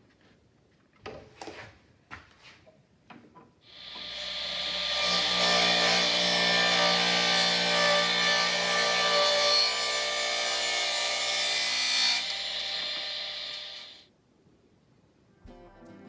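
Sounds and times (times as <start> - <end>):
power tool rubbing hiss: 3.7 - 5.0
power tool motor hum: 3.7 - 10.2, 11.7 - 14.0.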